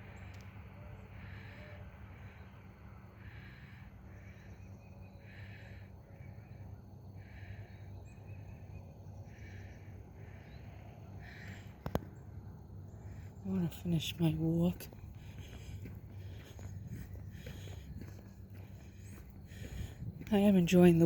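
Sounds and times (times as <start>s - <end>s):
steady low rumble: 0.0s - 21.0s
person breathing heavily: 1.0s - 11.8s, 14.8s - 20.3s.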